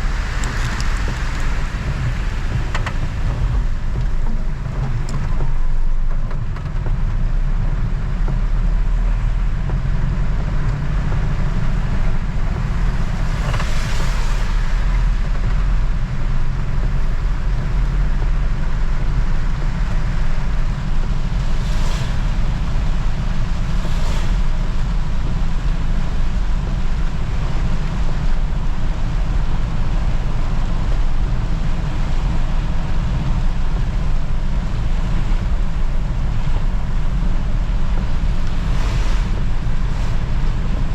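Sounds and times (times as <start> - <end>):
engine and tyres rumbling: 0.0 - 40.9
road and wind noise hiss: 0.0 - 40.9
brief rushing swells: 38.2 - 40.9.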